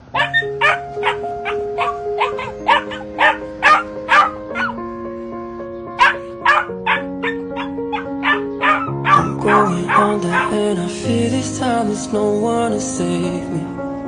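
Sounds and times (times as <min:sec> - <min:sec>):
background music with held chords: 0:00.0 - 0:14.0
dog barking and yelping: 0:00.1 - 0:04.8, 0:06.0 - 0:10.5.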